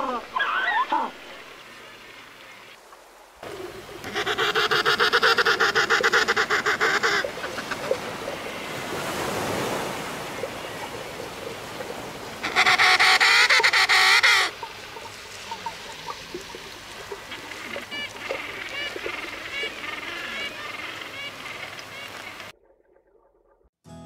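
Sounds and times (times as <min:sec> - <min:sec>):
penguins braying: 0:04.0 - 0:08.8, 0:12.4 - 0:14.7, 0:17.1 - 0:22.5.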